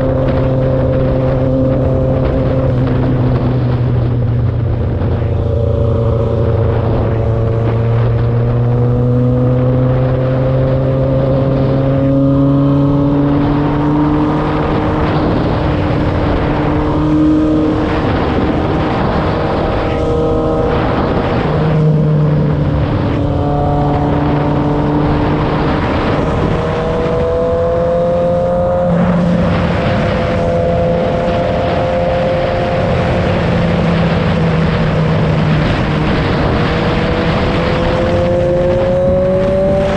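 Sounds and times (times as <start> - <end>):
motorcycle engine revving: 0.0 - 39.9
wind rushing: 0.0 - 39.9.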